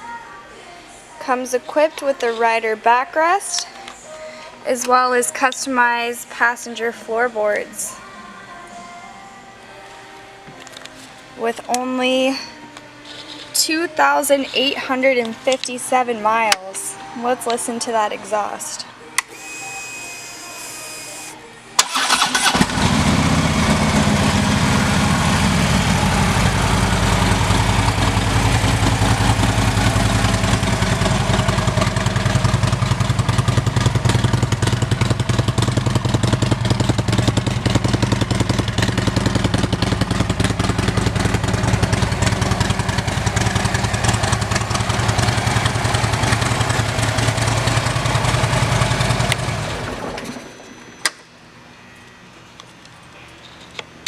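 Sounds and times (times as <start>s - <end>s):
motorcycle engine starting and idling: 21.8s - 51.2s.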